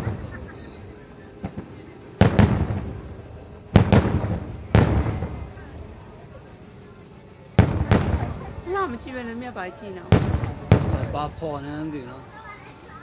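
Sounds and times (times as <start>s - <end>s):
firework shells bursting: 1.4s - 5.6s, 10.1s - 11.4s.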